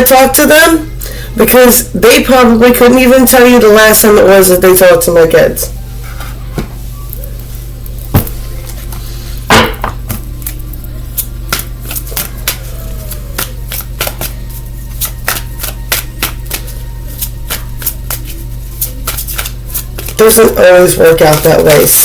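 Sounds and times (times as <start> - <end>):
low electrical hum: 0.0 - 22.0
cards shuffling and clicking: 10.1 - 21.9.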